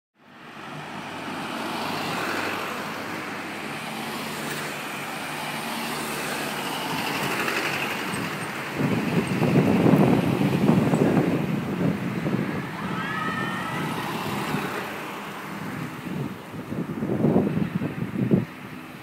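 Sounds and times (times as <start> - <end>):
road traffic hiss: 0.2 - 19.0.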